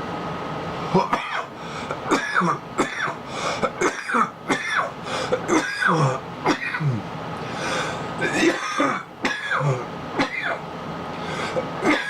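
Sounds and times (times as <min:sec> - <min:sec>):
man coughing: 0:00.9 - 0:01.5, 0:02.1 - 0:07.1, 0:08.2 - 0:10.6, 0:11.5 - 0:12.0.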